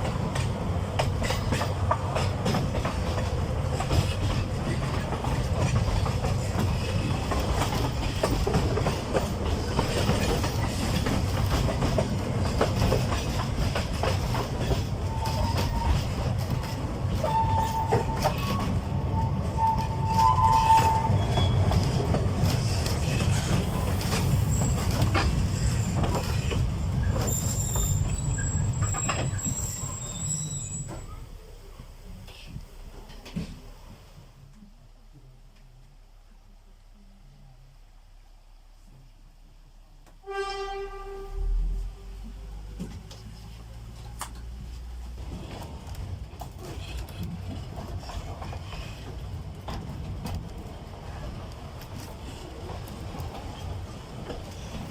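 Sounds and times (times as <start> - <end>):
wheels clicking over rail joints: 0.0 - 31.2, 45.2 - 54.9
diesel train rumbling: 0.0 - 54.9
wheel squeal: 14.6 - 16.1, 17.2 - 22.0, 24.1 - 31.2.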